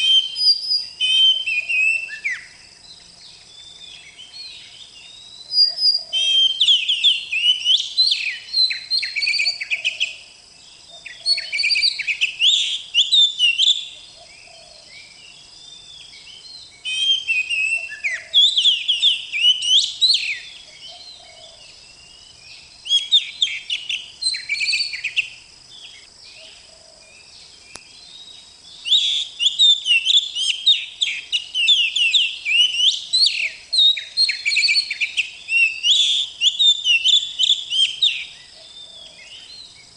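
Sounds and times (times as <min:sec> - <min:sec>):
bird singing whistles and chirps: 0:00.0 - 0:39.9.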